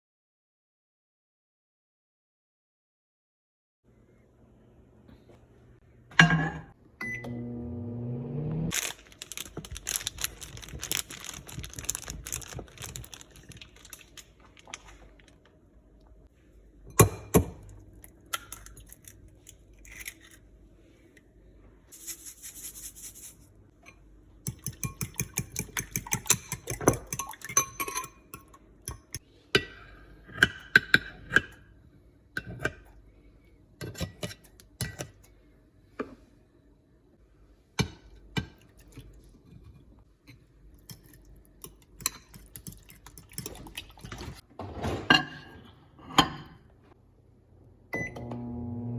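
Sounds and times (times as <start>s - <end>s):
short rising hum: 7.4s - 8.7s
utensils clinking against a bowl: 23.8s - 31.6s
fork beating eggs: 24.5s - 28.1s, 40.9s - 44.0s.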